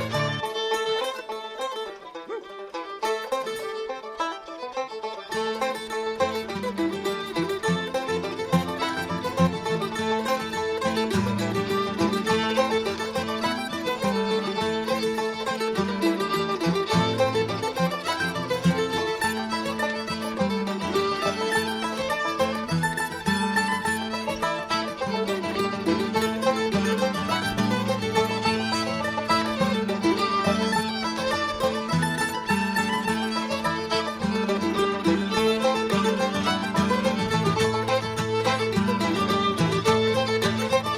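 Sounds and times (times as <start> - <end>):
fiddle: 0.0 - 40.9
string band music: 0.0 - 40.9.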